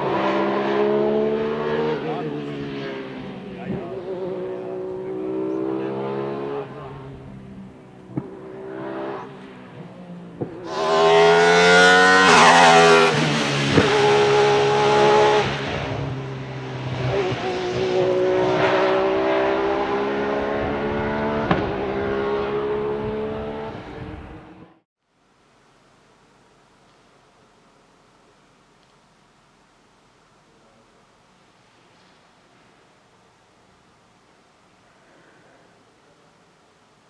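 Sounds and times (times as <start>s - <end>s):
race car engine revving: 0.0s - 24.8s.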